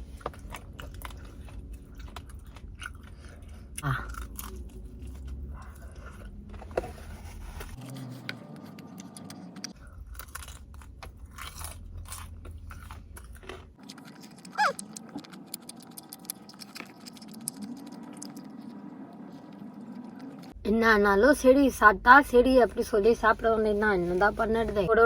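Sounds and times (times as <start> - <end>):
crunching fried chicken: 0.0 - 6.6, 7.8 - 20.5
chewing: 0.0 - 6.8, 7.8 - 20.6.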